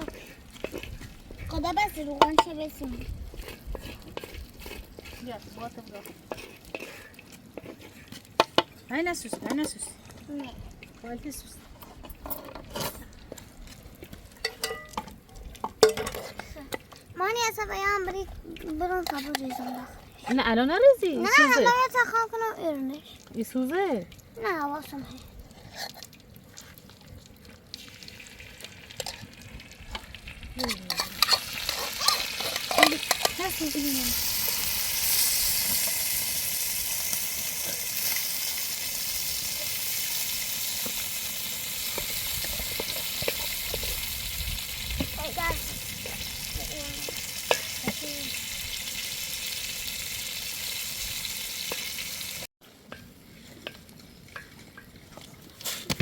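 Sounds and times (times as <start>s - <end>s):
utensil scraping and knocking pan: 1.8s - 9.9s, 30.6s - 34.6s
food sizzling in a pan: 27.8s - 52.5s.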